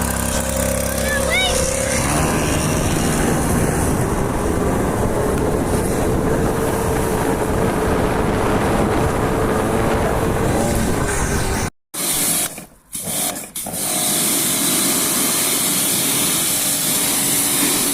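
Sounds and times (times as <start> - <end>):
loud rushing noise: 0.0 - 11.7
dirt bike motor: 0.0 - 13.9.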